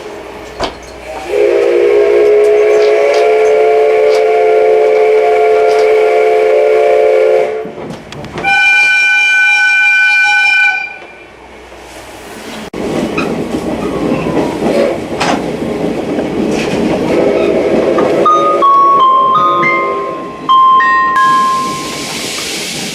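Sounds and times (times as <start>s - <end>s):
train running: 0.0s - 22.9s
steam locomotive whistle blowing: 1.1s - 7.7s, 8.4s - 11.2s, 17.2s - 22.3s.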